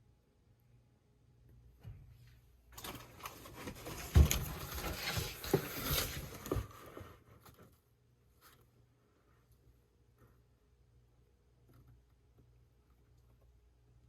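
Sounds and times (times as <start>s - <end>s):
rustling handling noise: 2.2s - 10.5s.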